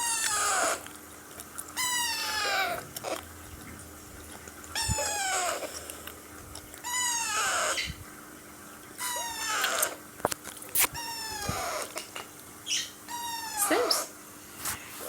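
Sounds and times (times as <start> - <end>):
parakeet chick begging calls: 6.9 - 8.0, 11.0 - 11.9, 12.6 - 14.1.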